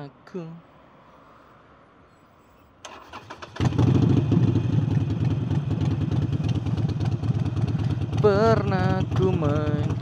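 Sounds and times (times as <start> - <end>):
motorcycle engine running: 3.5 - 10.0.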